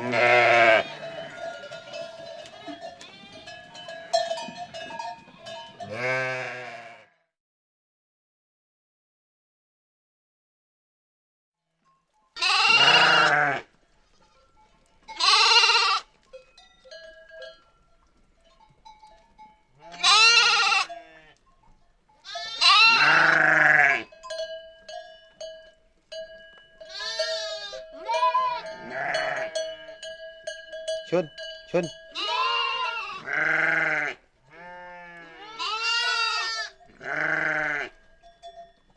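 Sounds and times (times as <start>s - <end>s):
flock bleating: 0.0s - 3.6s, 5.4s - 7.1s, 12.4s - 13.7s, 15.1s - 16.1s, 19.8s - 21.4s, 22.2s - 24.1s, 26.9s - 30.0s, 31.1s - 38.0s
small bells clinking: 0.6s - 6.1s, 13.9s - 32.8s, 36.7s - 38.9s.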